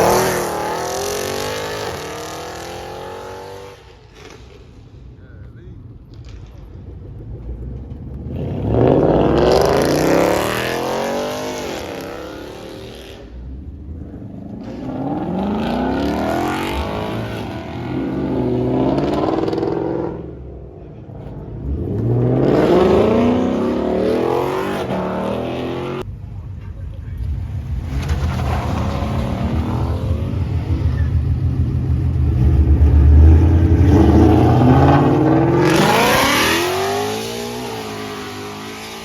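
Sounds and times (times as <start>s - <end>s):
car engine revving hard: 0.0s - 3.8s, 8.2s - 13.4s, 14.4s - 20.4s, 21.6s - 26.0s, 27.8s - 39.0s.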